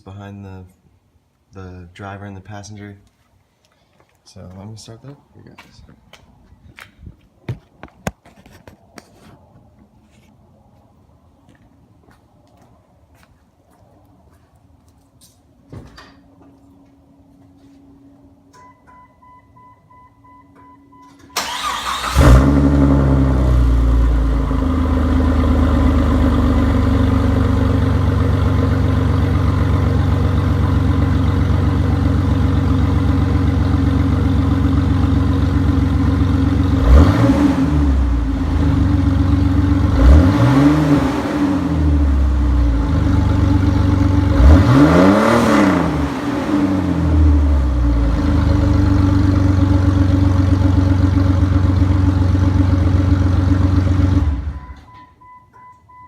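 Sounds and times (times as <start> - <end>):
car engine cranking and idling: 20.6 - 55.7
engine revving: 21.4 - 27.4, 36.2 - 48.9.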